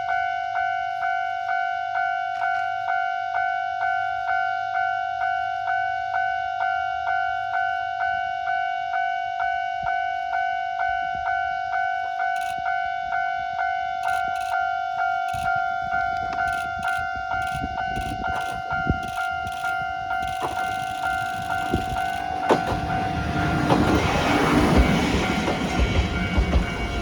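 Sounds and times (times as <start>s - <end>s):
level-crossing bell dinging: 0.1s - 27.0s
railcar rumble: 9.2s - 27.0s.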